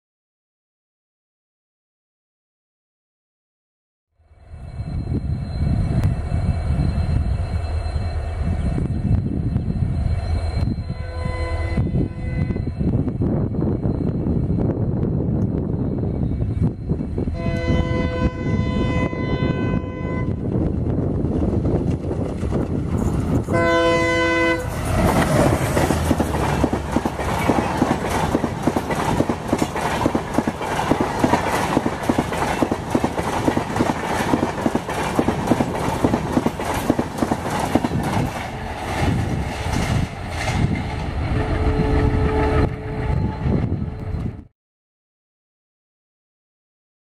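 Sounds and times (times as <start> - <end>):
locomotive horn: 10.9 - 12.8, 17.3 - 20.5, 23.5 - 25.6, 41.2 - 44.2
train wheels clattering over rail joints: 24.7 - 41.1.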